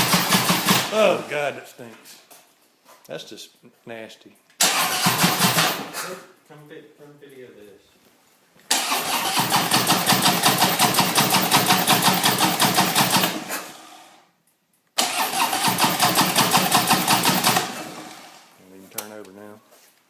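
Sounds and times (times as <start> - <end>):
motorcycle starter cranking: 0.0 - 0.9, 4.6 - 5.9, 8.7 - 13.5, 15.0 - 18.4.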